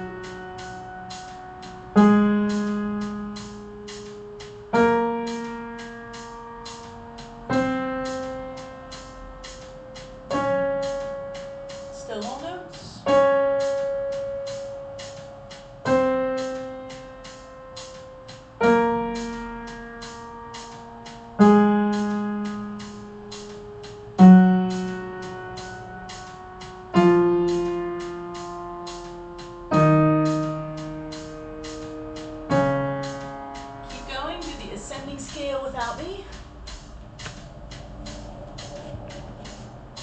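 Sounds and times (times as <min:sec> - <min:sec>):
piano playing descending scale: 0:00.0 - 0:40.0.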